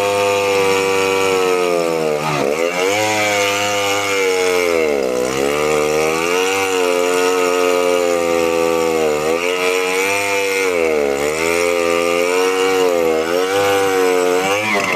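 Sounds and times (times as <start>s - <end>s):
chainsaw engine cutting: 0.0s - 14.9s.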